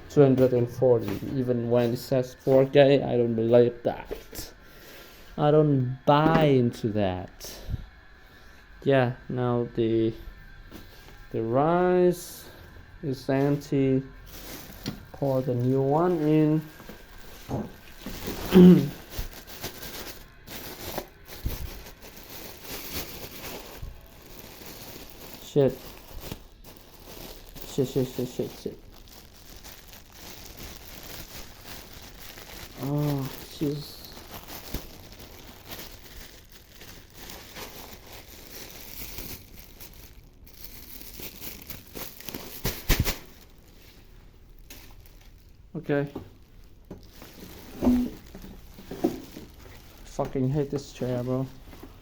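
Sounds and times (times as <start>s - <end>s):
plastic bag crinkling: 12.1s - 52.0s.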